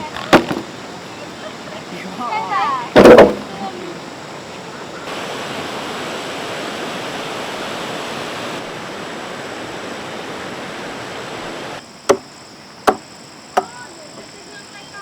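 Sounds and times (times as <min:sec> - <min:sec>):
steady rushing noise: 0:00.8 - 0:11.8.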